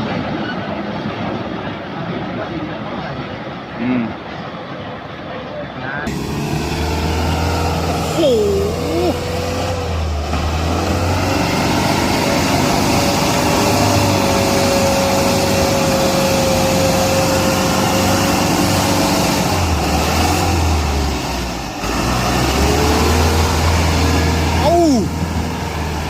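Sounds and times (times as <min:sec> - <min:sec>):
tractor engine running: 0:06.1 - 0:26.0.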